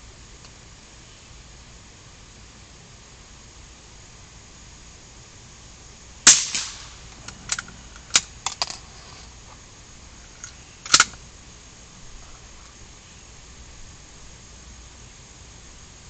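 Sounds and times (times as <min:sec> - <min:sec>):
gunshots: 0:06.3 - 0:07.0
sharp small clicks: 0:10.4 - 0:11.2.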